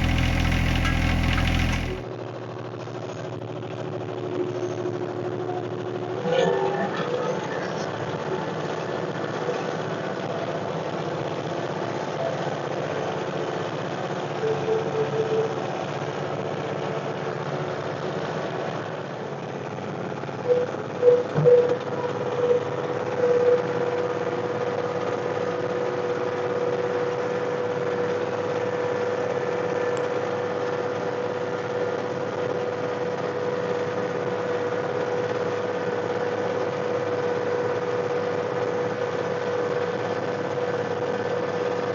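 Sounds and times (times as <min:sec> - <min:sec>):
steady whine: 0:00.0 - 0:02.0
tractor diesel engine running: 0:00.0 - 0:02.0.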